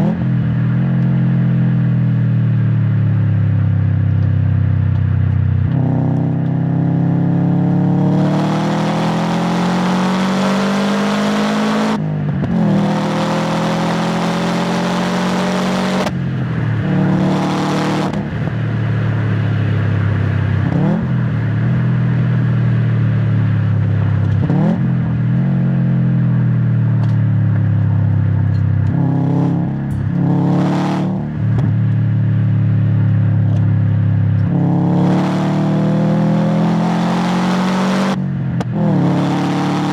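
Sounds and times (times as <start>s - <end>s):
car engine accelerating hard: 5.6s - 39.9s
engine rev blips: 7.8s - 18.7s, 34.4s - 39.9s.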